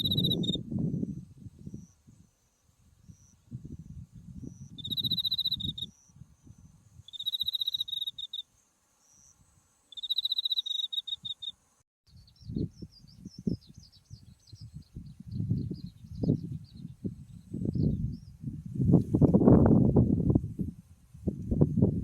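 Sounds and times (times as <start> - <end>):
wind rumble: 0.0 - 2.2, 12.4 - 22.0
cricket trilling: 0.0 - 11.6
chorus of insects: 0.0 - 11.8.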